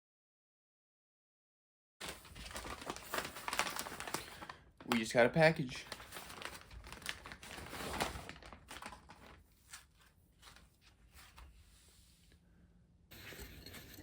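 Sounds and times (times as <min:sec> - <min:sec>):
packaging crinkling and tearing: 0:02.0 - 0:10.7.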